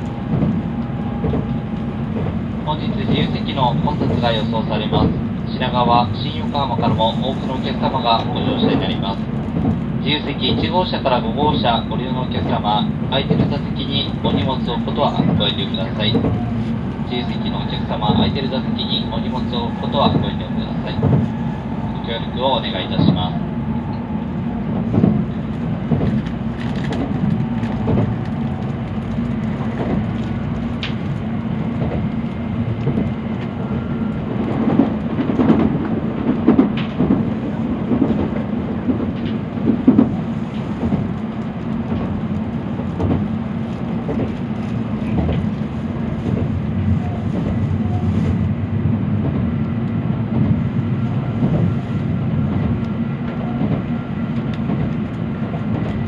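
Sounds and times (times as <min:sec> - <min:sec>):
train wheels rumbling on rails: 0:00.0 - 0:56.0
knocks and clatters: 0:24.8 - 0:31.2.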